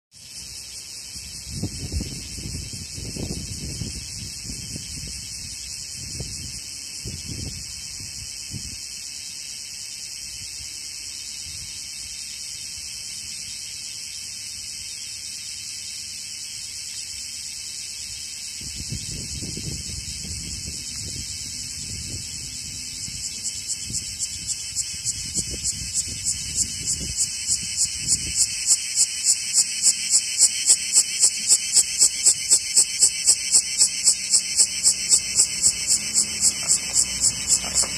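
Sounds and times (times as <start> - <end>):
cicadas buzzing: 0.1 - 37.9.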